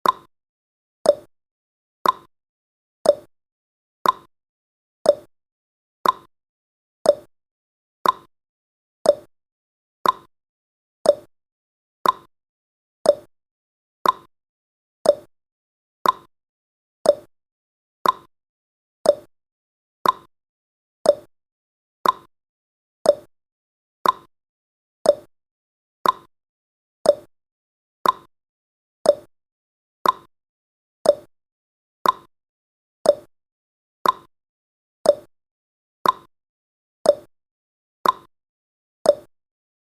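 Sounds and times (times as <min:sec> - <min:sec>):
clock-style tick-tock: 0:00.0 - 0:00.3, 0:01.0 - 0:01.3, 0:02.0 - 0:02.3, 0:03.0 - 0:03.3, 0:04.0 - 0:04.3, 0:05.0 - 0:05.3, 0:06.0 - 0:06.3, 0:07.0 - 0:07.3, 0:08.0 - 0:08.3, 0:09.0 - 0:09.3, 0:10.0 - 0:10.3, 0:11.0 - 0:11.3, 0:12.0 - 0:12.3, 0:13.0 - 0:13.3, 0:14.0 - 0:14.3, 0:15.0 - 0:15.3, 0:16.0 - 0:16.3, 0:17.0 - 0:17.3, 0:18.0 - 0:18.3, 0:19.0 - 0:19.3, 0:20.0 - 0:20.3, 0:21.0 - 0:21.3, 0:22.0 - 0:22.3, 0:23.0 - 0:23.3, 0:24.0 - 0:24.3, 0:25.0 - 0:25.3, 0:26.0 - 0:26.3, 0:27.0 - 0:27.3, 0:28.0 - 0:28.3, 0:29.0 - 0:29.3, 0:30.0 - 0:30.3, 0:31.0 - 0:31.3, 0:32.0 - 0:32.3, 0:33.0 - 0:33.4, 0:34.0 - 0:34.4, 0:35.0 - 0:35.4, 0:36.0 - 0:36.3, 0:37.0 - 0:37.3, 0:38.0 - 0:38.4, 0:39.0 - 0:39.4.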